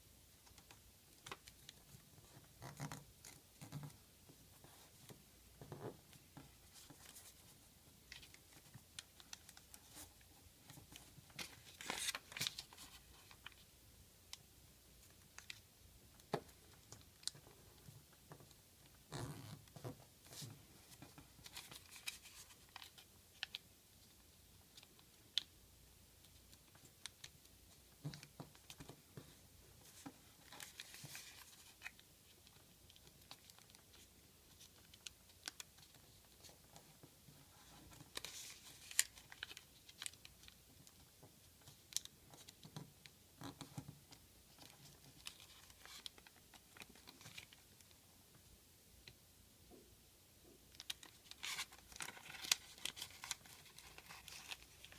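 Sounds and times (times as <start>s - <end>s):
soft clicks and crackles of folding: 0.3s - 54.9s
paper rustling and crinkling: 6.4s - 13.6s, 19.5s - 23.6s, 28.0s - 41.0s, 44.5s - 47.6s, 50.7s - 54.9s.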